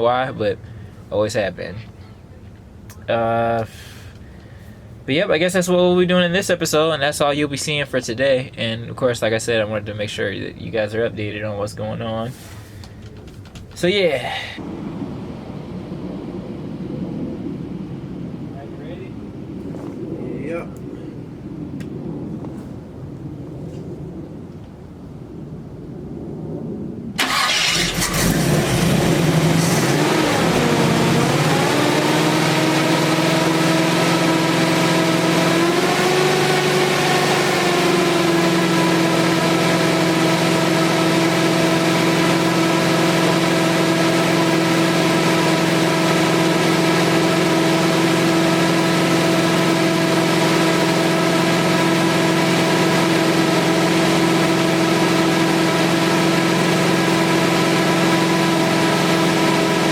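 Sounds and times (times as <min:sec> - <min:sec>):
truck engine running: 0:27.2 - 0:59.9.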